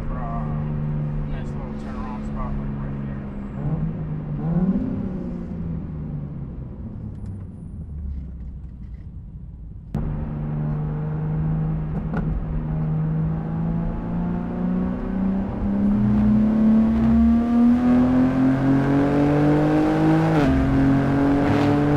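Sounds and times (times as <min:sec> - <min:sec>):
car engine rumbling at low revs: 0:00.0 - 0:21.9.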